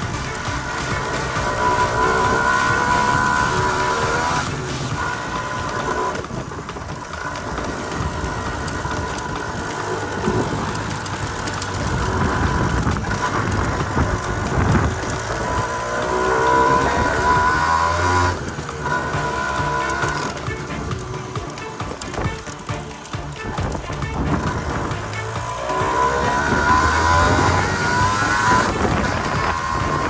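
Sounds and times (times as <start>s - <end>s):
two-stroke motorcycle engine revving: 0.0s - 30.0s.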